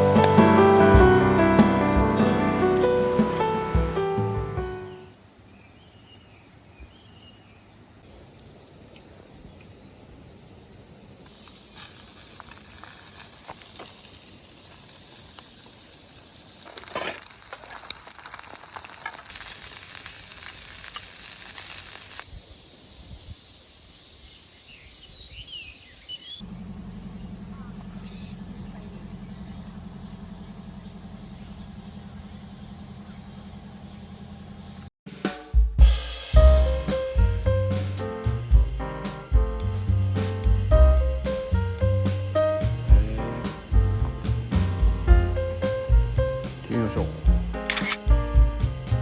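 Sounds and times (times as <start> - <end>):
food sizzling and crackling: 11.3 - 22.3
faint bird chirps: 22.3 - 34.8.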